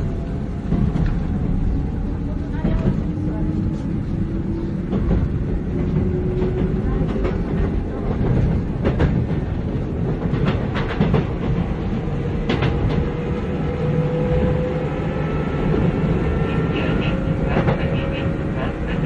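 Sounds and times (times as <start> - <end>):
train rumble with motor whine: 0.0 - 19.0
rail-joint clicks: 0.6 - 1.3, 4.8 - 11.8, 12.4 - 13.4, 15.7 - 19.0.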